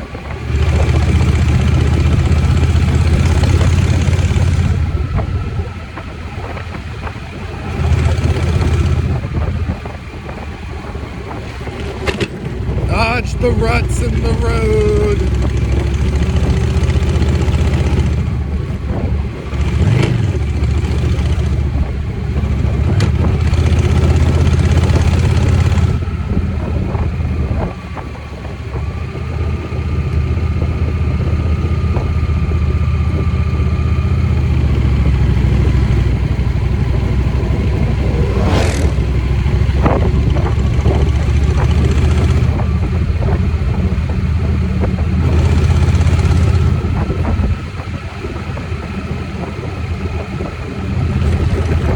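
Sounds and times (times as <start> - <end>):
motorcycle engine running: 0.0 - 51.9
rush of noise: 12.0 - 18.3, 36.5 - 40.7.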